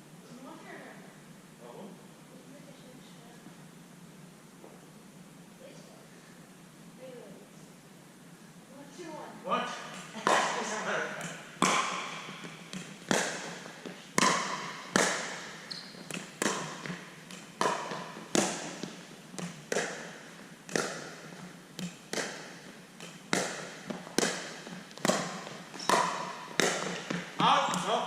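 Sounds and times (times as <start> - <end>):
paddles striking plastic ball: 9.9 - 28.0.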